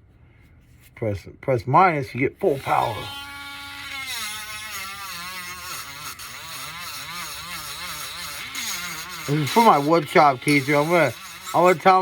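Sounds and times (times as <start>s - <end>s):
power sander whine: 2.5s - 12.0s.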